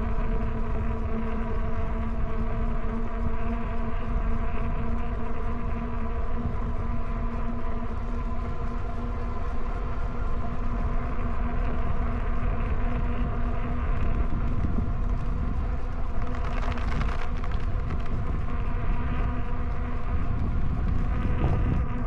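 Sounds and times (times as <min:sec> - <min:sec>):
electric motor whine: 0:00.0 - 0:22.0
wind buffeting microphone: 0:09.8 - 0:22.0.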